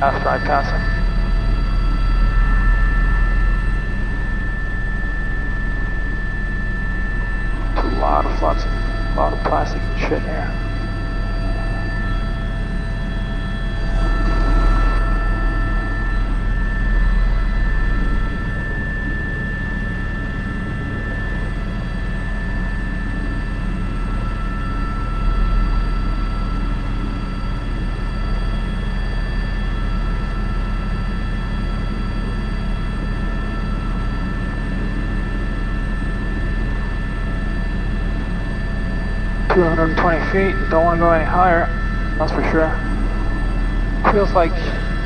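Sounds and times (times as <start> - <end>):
helicopter rotor beat: 0.0 - 45.0
turbine engine whine: 0.0 - 45.0
steady high tones: 7.3 - 15.0, 39.5 - 45.0.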